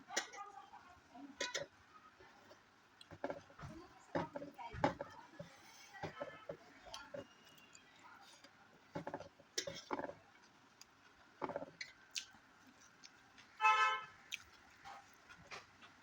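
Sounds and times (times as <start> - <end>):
crunchy chewing: 5.4 - 16.0.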